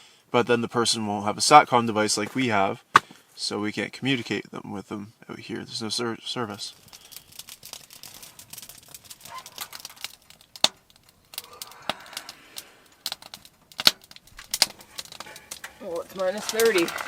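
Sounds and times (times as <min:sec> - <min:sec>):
rustling and crinkling: 0:06.5 - 0:17.0
sharp clicks and snaps: 0:06.7 - 0:17.0.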